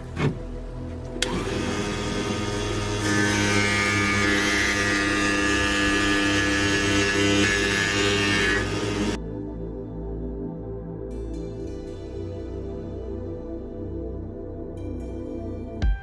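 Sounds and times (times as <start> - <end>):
power grinder whining: 0.0 - 9.2.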